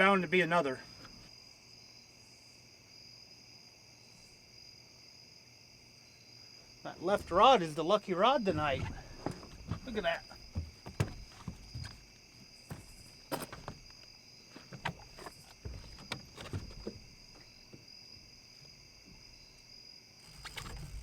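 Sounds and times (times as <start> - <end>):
night insects chorus: 0.0 - 21.0
sharp clicks and knocks: 8.4 - 12.1, 12.7 - 17.8.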